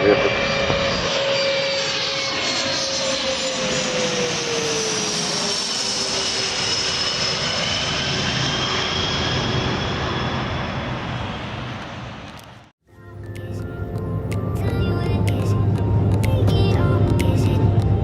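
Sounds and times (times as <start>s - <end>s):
jet aircraft passing overhead: 0.0s - 12.7s.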